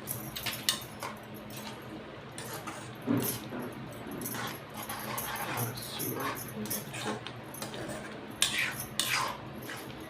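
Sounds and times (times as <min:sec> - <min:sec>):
steady low hum: 0:00.0 - 0:10.0
metal spoon scraping pan: 0:02.4 - 0:03.0, 0:04.3 - 0:10.0.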